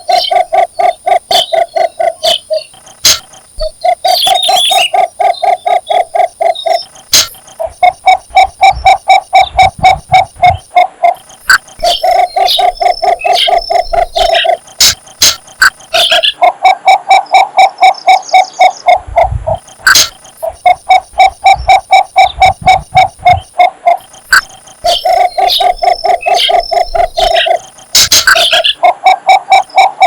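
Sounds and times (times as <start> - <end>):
sharp clicks: 0.0 - 16.4
bird call of low notes: 0.0 - 30.0.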